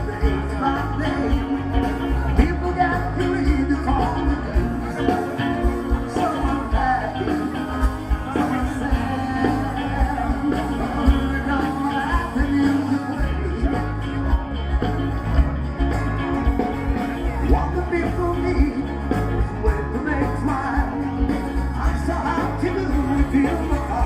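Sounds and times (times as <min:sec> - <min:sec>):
person singing: 0:00.0 - 0:24.0
rock band playing live: 0:00.0 - 0:24.0.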